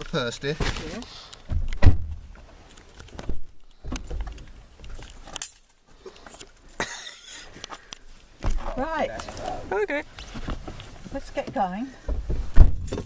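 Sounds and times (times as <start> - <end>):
rustling: 0.0 - 6.8, 7.4 - 13.0
keys jangling: 4.8 - 5.8, 12.8 - 13.0.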